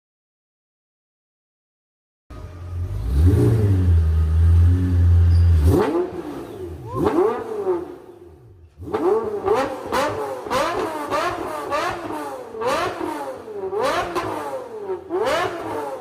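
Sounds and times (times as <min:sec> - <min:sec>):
car exhaust rumble and revs: 0:02.3 - 0:16.0.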